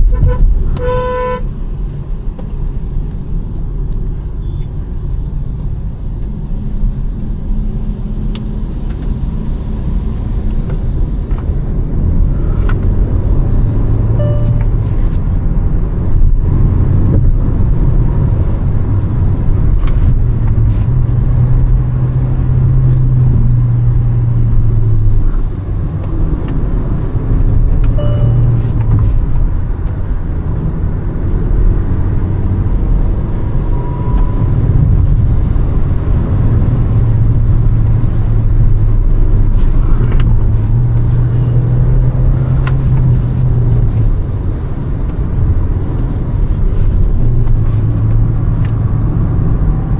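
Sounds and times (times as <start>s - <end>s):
road and tyre noise: 0.0s - 49.9s.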